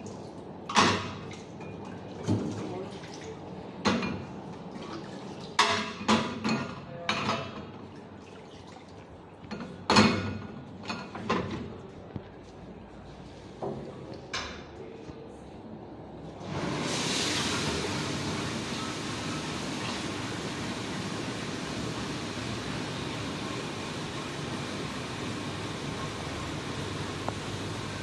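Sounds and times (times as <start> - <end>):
dishes and glassware clinking: 5.6 - 7.7.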